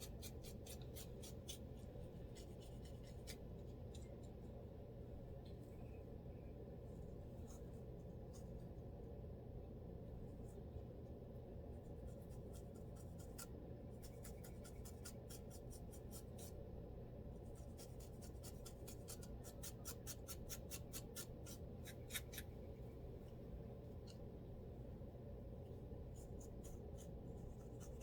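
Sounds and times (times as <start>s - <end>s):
fingers scratching scalp: 0.0s - 3.5s, 12.2s - 16.5s, 17.5s - 22.5s
faint low hum: 0.0s - 28.0s.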